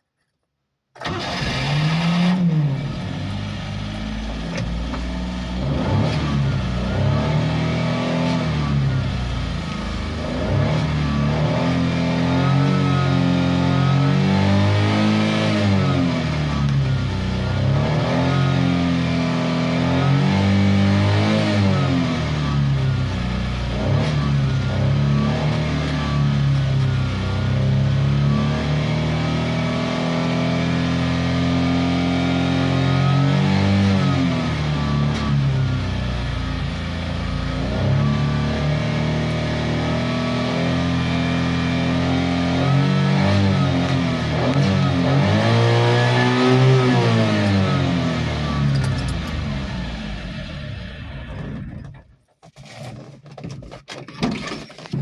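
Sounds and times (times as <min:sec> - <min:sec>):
small car engine revving: 0:01.0 - 0:52.0.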